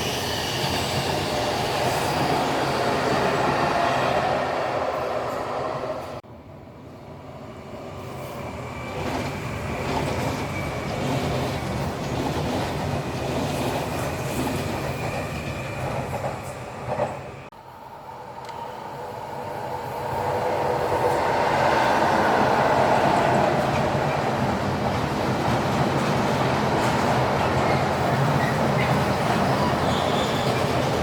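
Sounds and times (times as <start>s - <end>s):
train wheels clickety-clack: 8.8s - 17.3s, 22.1s - 31.0s.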